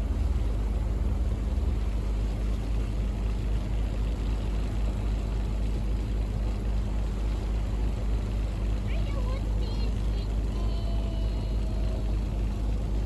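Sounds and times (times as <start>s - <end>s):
boat engine droning: 0.0s - 13.0s
wind and water rushing: 0.0s - 13.0s.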